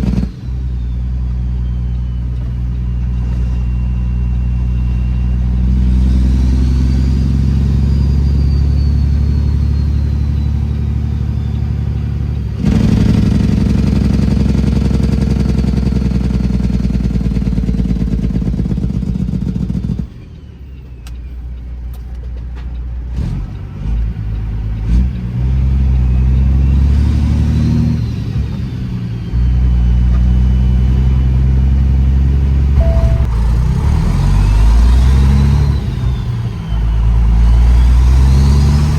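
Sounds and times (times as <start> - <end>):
turbo whistle: 0.0 - 11.7, 32.8 - 38.7
diesel truck engine under load: 0.0 - 38.9.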